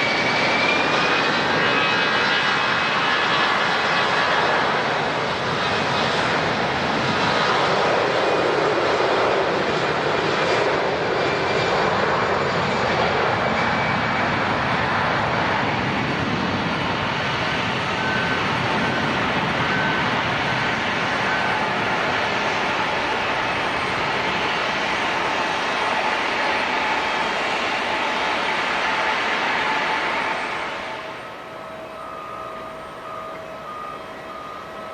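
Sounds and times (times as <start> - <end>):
airliner engines passing: 0.0 - 34.9.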